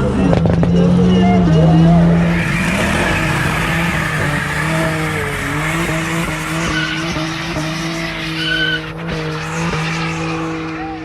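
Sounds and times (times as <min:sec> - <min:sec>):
car engine at high revs: 0:00.0 - 0:11.0
tyres squealing: 0:01.0 - 0:11.0.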